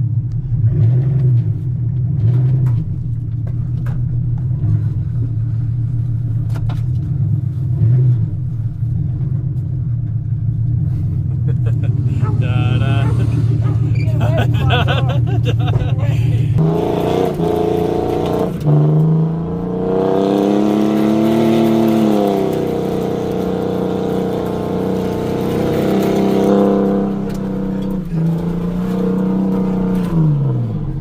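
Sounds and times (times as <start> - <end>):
truck engine revving: 10.8 - 31.0.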